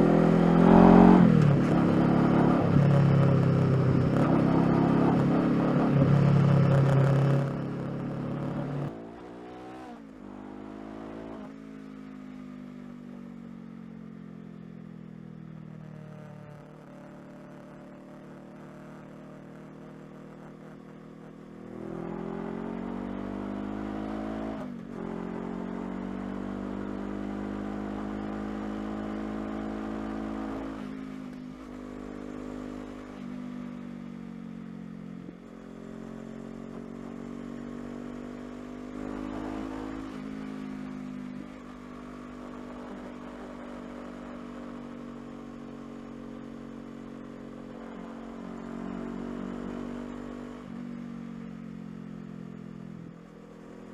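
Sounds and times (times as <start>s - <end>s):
motorcycle engine accelerating: 0.0s - 12.0s, 12.9s - 53.9s.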